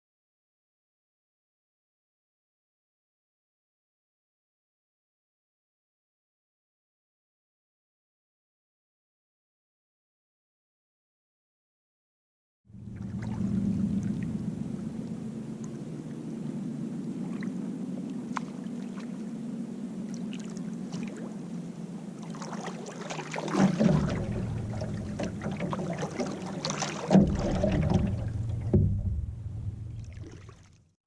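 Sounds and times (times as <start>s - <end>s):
water lapping around canoe: 12.8s - 30.9s
paddle ticks: 23.6s - 30.4s.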